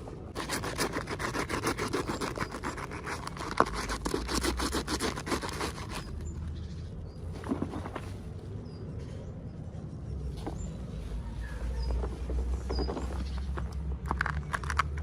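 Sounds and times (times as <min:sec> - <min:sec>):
quick scraping strokes: 0:00.4 - 0:06.3.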